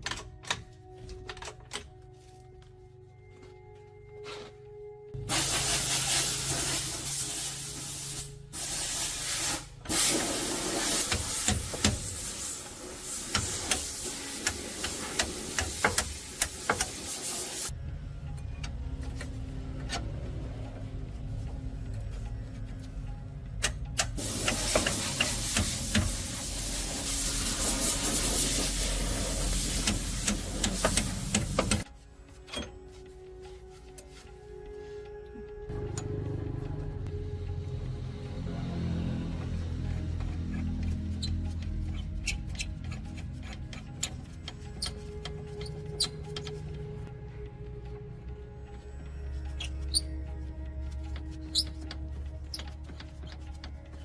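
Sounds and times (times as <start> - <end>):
spraying hiss: 5.2 - 17.7, 24.2 - 31.8.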